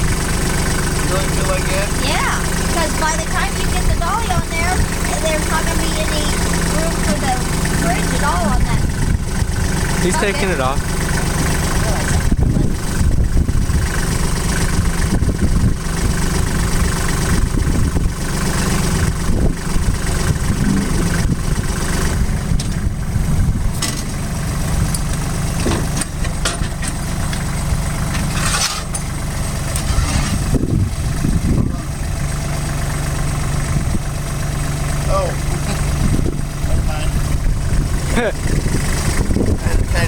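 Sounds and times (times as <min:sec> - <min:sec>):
loader engine idling: 0:00.0 - 0:40.0.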